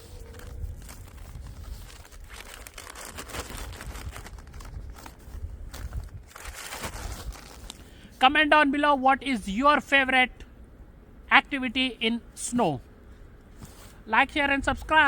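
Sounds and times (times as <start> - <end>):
wind rumbling on microphone: 0.0 - 7.8.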